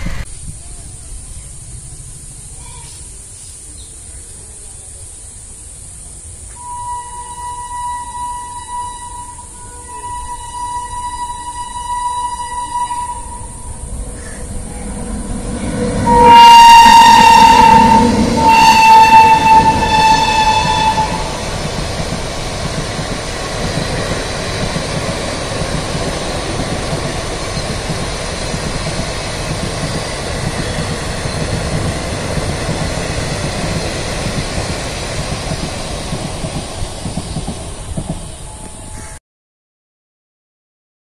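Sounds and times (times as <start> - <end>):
train coaches rumbling past: 0.0 - 39.2
locomotive horn blasts: 6.6 - 14.0, 14.8 - 21.5.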